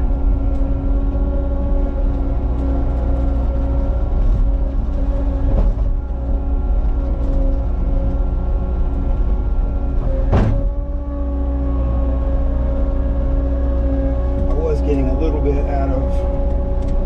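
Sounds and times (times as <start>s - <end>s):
diesel engine running: 0.0s - 17.0s
sharp clunk: 10.3s - 10.7s.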